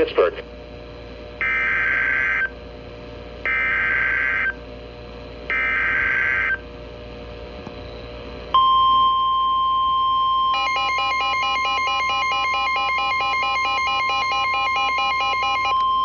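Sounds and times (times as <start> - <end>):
steady warning alarm tone: 1.4 - 2.6, 3.4 - 4.6, 5.5 - 6.6, 8.6 - 16.0.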